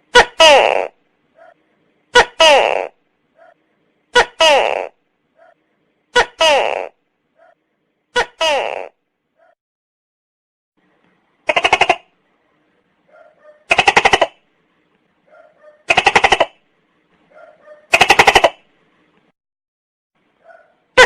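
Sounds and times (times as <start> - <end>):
gecko calling: 11.4 - 12.1, 13.1 - 14.4, 15.3 - 16.6, 17.4 - 18.6.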